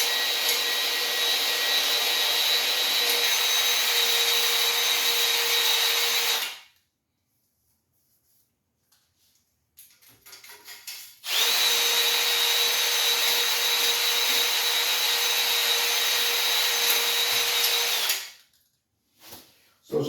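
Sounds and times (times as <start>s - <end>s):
electric drill whining: 0.0s - 6.6s, 11.2s - 18.4s.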